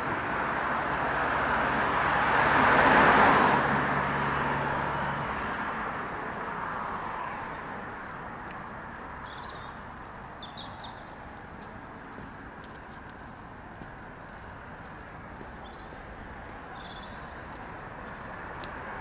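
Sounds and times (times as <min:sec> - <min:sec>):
vehicle passing by: 0:00.0 - 0:10.9.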